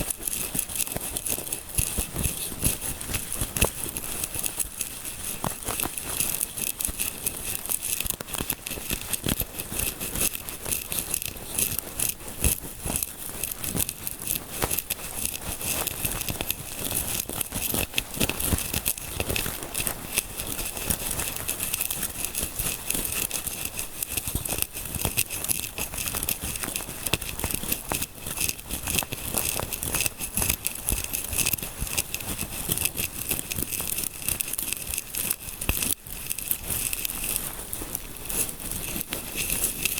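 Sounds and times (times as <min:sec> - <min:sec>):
fingers scratching near microphone: 0:00.0 - 0:39.9.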